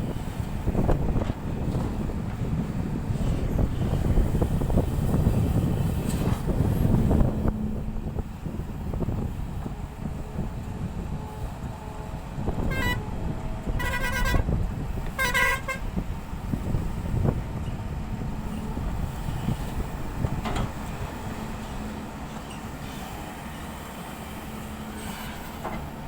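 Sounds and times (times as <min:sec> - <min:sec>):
diesel engines rumbling: 0:00.0 - 0:26.0
vehicle horn honking: 0:12.6 - 0:13.1, 0:13.7 - 0:14.6, 0:15.2 - 0:15.9.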